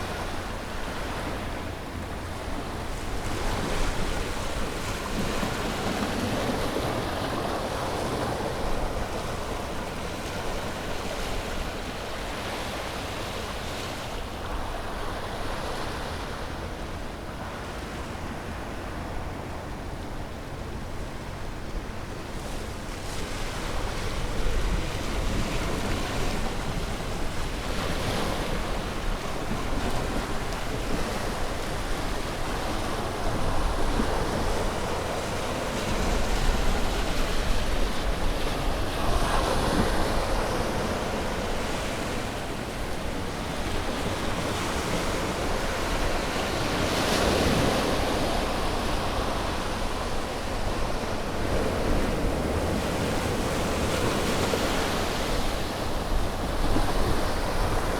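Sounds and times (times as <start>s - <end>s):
ocean waves breaking: 22.4s - 57.9s.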